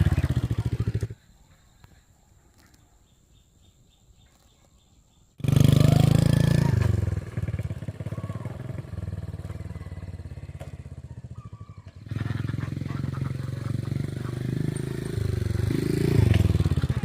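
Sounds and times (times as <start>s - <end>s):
old motorbike engine running: 0.0s - 1.2s, 5.4s - 17.0s.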